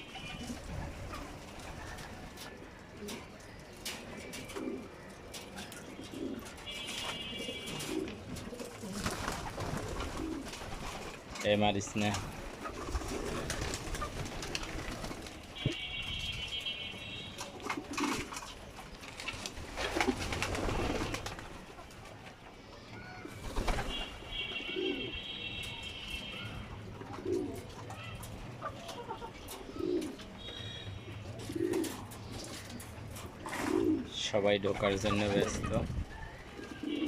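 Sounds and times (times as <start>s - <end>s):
pigeons cooing: 0.0s - 11.1s, 12.0s - 15.8s, 19.2s - 25.4s, 26.4s - 37.0s.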